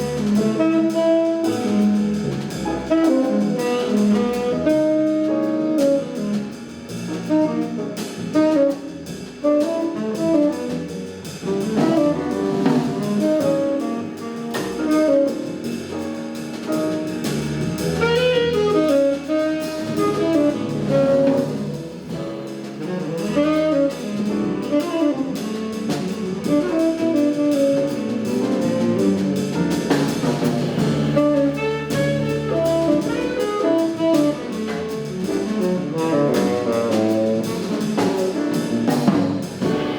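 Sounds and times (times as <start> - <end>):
drum kit with cymbals: 0.0 - 39.9
piano: 0.0 - 39.9
walking double bass: 0.0 - 39.9
saxophone melody: 18.0 - 21.8, 22.9 - 29.0, 31.1 - 34.7.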